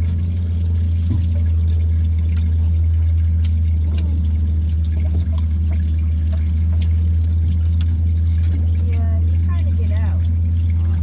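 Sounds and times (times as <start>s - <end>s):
pump humming: 0.0s - 11.0s
water pouring into tank: 0.0s - 11.0s.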